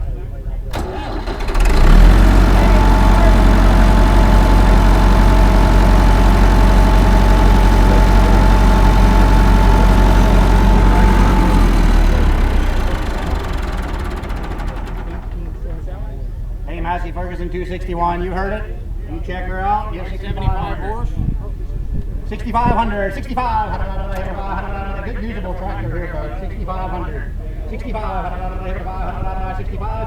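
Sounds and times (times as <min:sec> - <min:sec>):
tractor engine running: 0:00.6 - 0:16.7, 0:22.6 - 0:26.9.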